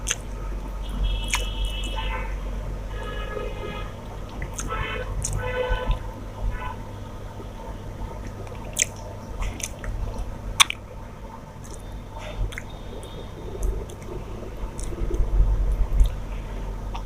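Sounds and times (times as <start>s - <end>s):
person chewing food: 0.0s - 2.0s, 4.0s - 6.1s, 8.2s - 10.8s, 11.6s - 16.3s
mouth clicks: 1.2s - 2.0s, 8.2s - 10.0s, 10.6s - 10.8s, 11.6s - 15.3s.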